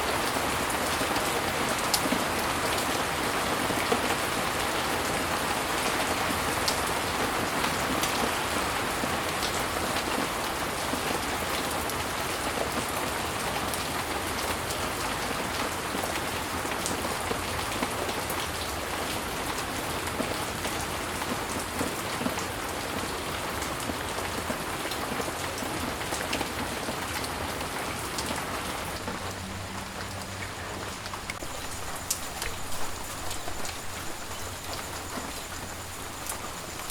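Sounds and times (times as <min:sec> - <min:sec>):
heavy rain falling: 0:00.0 - 0:36.9
raindrops tapping: 0:26.3 - 0:36.9.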